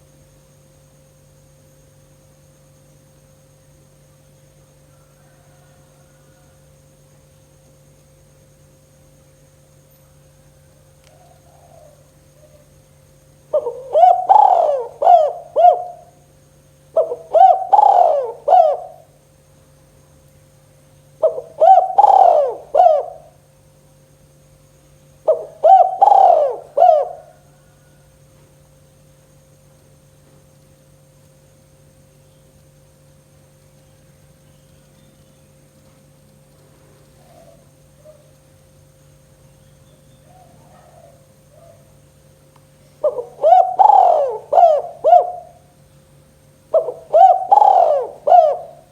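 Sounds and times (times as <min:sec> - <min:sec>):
faint steady hum: 0:00.0 - 0:48.9
dove cooing: 0:10.6 - 0:12.8, 0:13.5 - 0:16.3, 0:16.9 - 0:19.2, 0:21.2 - 0:23.4, 0:25.2 - 0:28.0, 0:37.0 - 0:38.4, 0:40.1 - 0:42.0, 0:42.9 - 0:45.8, 0:46.7 - 0:48.9.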